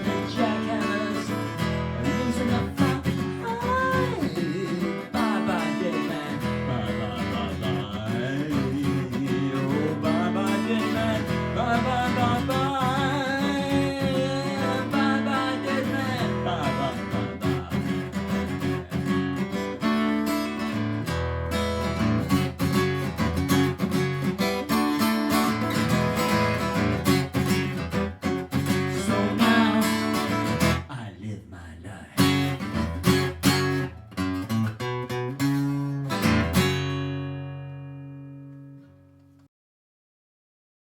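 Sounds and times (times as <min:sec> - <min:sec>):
strummed acoustic guitar: 0:00.0 - 0:31.0, 0:32.2 - 0:39.4.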